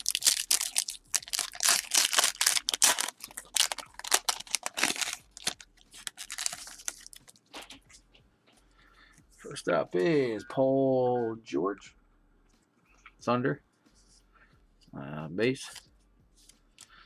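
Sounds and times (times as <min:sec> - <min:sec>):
card pack wrapper tearing and crinkling: 0:00.0 - 0:07.8.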